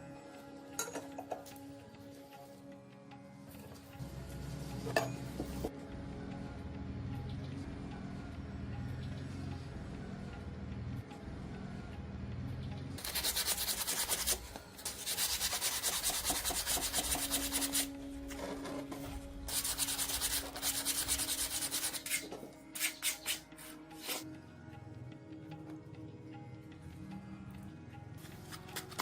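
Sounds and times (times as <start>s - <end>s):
abrasive sanding strokes: 13.0s - 17.9s, 19.5s - 24.2s.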